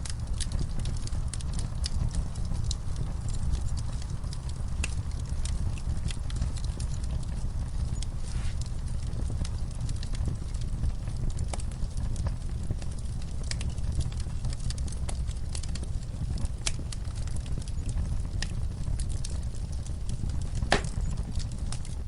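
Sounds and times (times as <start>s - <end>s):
fireplace fire crackling: 0.0s - 22.0s
sharp pops of fire: 0.0s - 22.0s.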